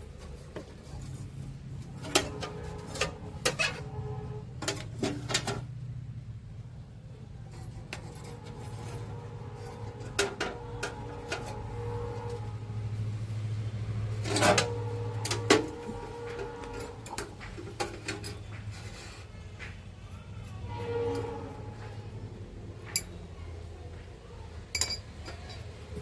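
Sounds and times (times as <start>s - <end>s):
objects being handled: 0.0s - 5.7s, 7.5s - 19.8s.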